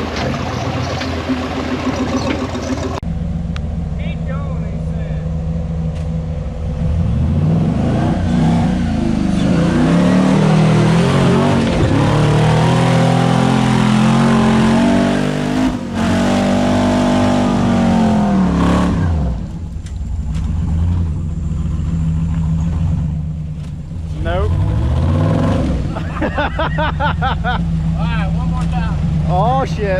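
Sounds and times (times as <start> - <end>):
engine idling: 0.0 - 7.5, 19.4 - 25.0
vehicle engine revving: 0.0 - 29.9.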